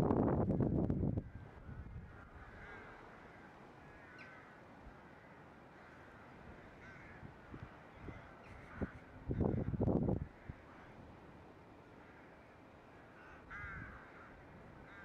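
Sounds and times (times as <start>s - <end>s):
distant bird calls: 1.2s - 11.0s.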